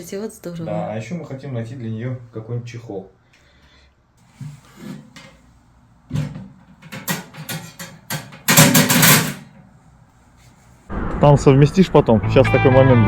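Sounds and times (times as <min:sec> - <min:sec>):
sharp knocks and clatter: 0:06.1 - 0:09.7.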